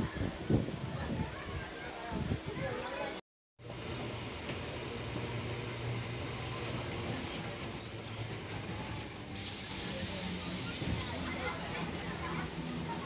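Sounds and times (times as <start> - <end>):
train rumbling: 3.6 - 13.0
high-pitched whine: 7.0 - 10.8.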